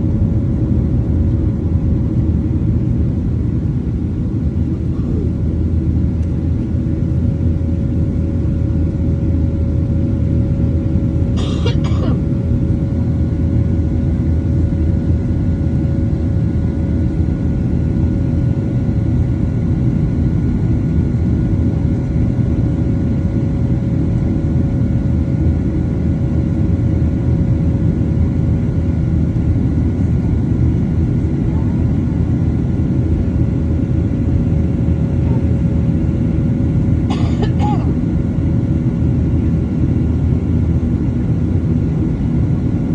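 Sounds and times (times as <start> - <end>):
steady hum tones: 0.0 - 15.4, 27.3 - 42.9
airplane cabin rumble: 0.0 - 42.9.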